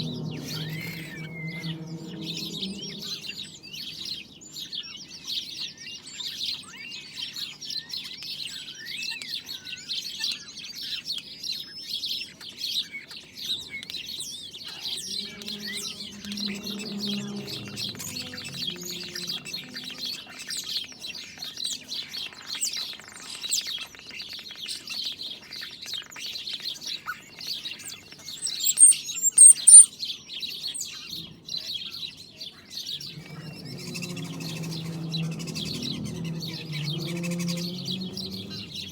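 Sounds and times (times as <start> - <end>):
faint low rumble: 0.0 - 4.8, 14.7 - 20.7, 32.9 - 38.9
many birds chirping: 0.0 - 38.9.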